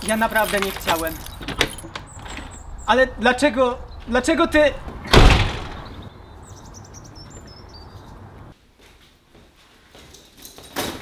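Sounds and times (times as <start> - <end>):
small bird chirping: 1.2 - 3.1, 5.8 - 8.4
thud: 5.1 - 5.8.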